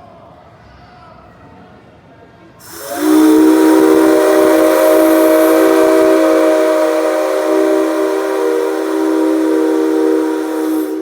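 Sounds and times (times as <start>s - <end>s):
steam locomotive whistle: 2.6s - 11.0s.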